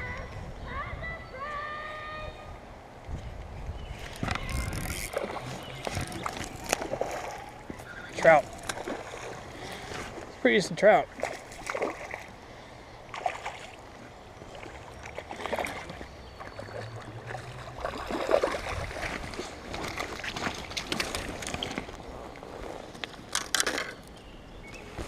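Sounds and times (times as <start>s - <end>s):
stream flowing: 4.1s - 24.1s
water sloshing and splashing: 4.1s - 24.1s.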